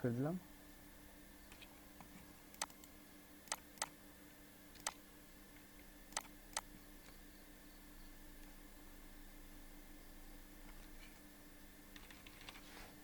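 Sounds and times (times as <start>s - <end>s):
faint electrical hum: 0.0s - 13.0s
computer mouse clicks: 1.5s - 1.7s, 2.5s - 2.9s, 3.5s - 3.9s, 4.8s - 5.0s, 6.1s - 7.2s, 11.9s - 12.6s.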